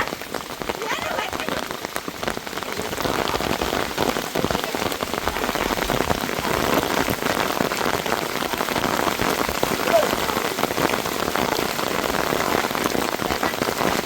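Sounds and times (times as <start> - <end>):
heavy rain pattering: 0.0 - 14.0.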